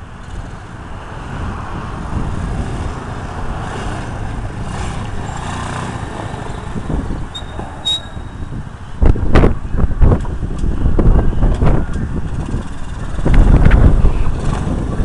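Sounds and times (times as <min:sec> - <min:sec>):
atv engine revving: 0:00.2 - 0:08.4, 0:12.2 - 0:15.0.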